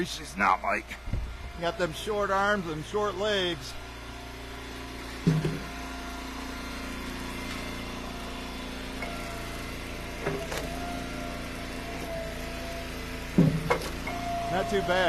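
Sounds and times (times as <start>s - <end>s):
log splitter engine running: 0.0s - 15.0s
wood rounds knocking: 13.3s - 14.0s.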